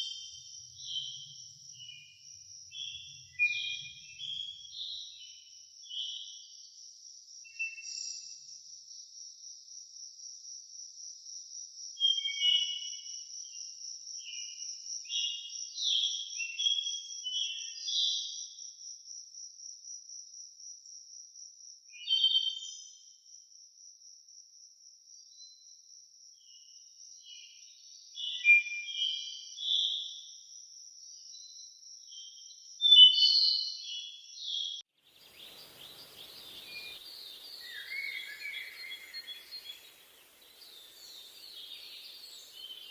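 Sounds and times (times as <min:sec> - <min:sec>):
birdsong: 0:32.9 - 0:42.9
birds chirping: 0:35.1 - 0:42.9
soft hiss: 0:35.1 - 0:42.9
insect trilling: 0:35.2 - 0:42.9.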